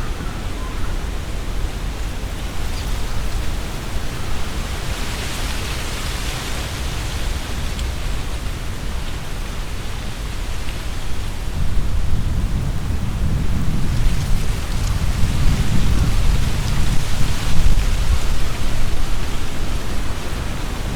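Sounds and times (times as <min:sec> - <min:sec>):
wind rumble on microphone: 0:00.0 - 0:20.9
wind rustling tree leaves: 0:00.0 - 0:20.9.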